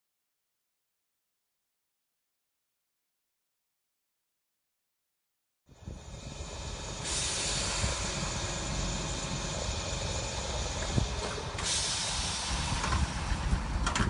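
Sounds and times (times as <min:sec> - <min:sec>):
electric train drawing alongside: 0:05.7 - 0:14.0
loud hiss of air: 0:05.8 - 0:13.8.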